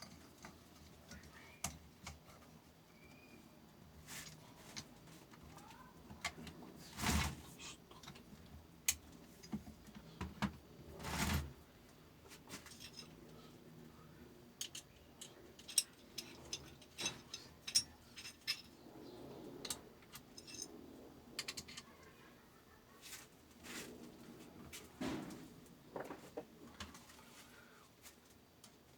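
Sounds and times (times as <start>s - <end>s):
metal parts and tools clinking: 12.6s - 13.2s, 14.6s - 18.8s, 19.6s - 20.8s.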